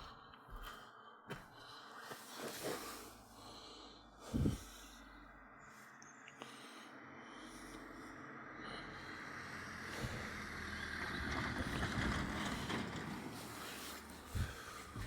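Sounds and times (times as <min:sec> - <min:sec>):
train rumble and rail noise: 0:07.4 - 0:15.0.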